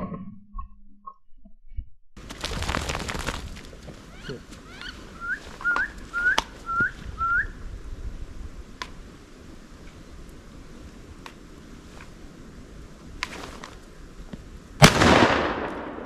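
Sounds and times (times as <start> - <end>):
rising duck whistles: 5.2 - 7.6.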